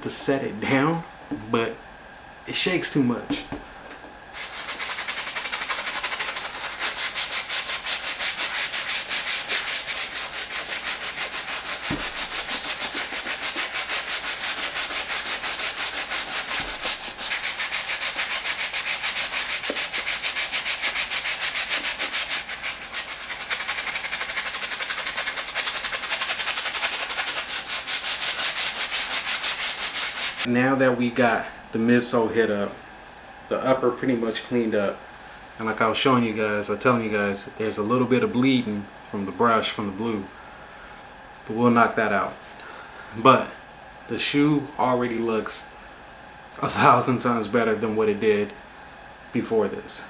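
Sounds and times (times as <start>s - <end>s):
brush scrubbing a sneaker: 4.4s - 30.5s.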